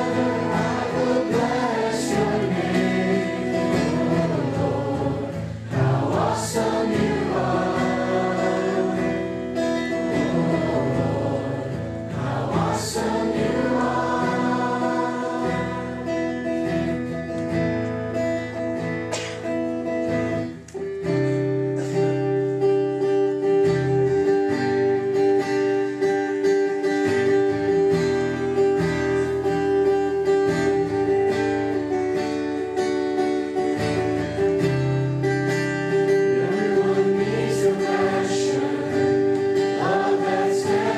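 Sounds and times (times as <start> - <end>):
group singing gospel: 0.0 - 17.0, 36.2 - 40.9
acoustic guitar: 0.0 - 40.9.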